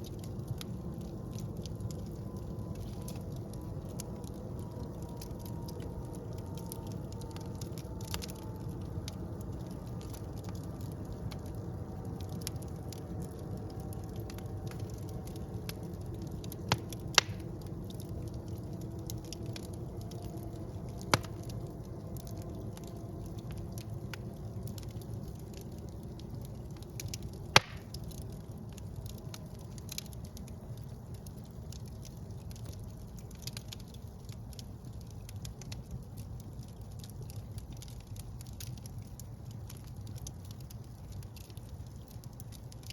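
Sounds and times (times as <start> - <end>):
fire crackling: 0.0 - 42.9
loud sharp pops: 27.6 - 27.9.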